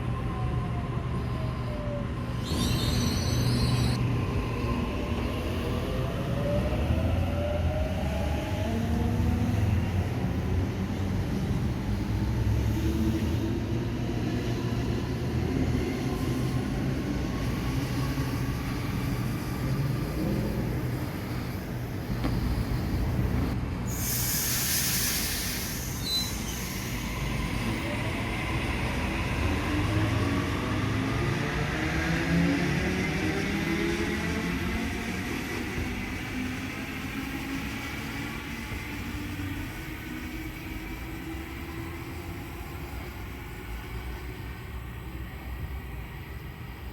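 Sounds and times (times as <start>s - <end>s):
burst of hiss: 23.9s - 27.1s.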